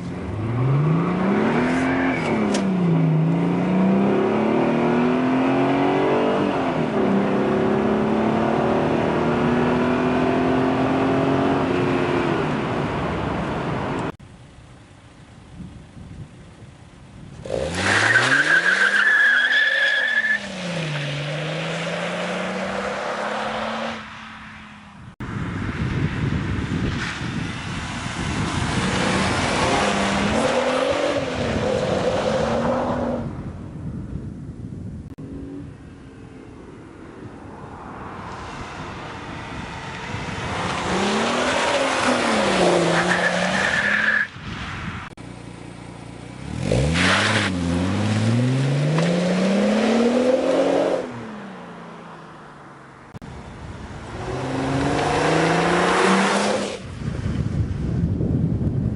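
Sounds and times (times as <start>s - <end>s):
car engine revving hard: 0.3s - 12.2s, 54.1s - 56.9s.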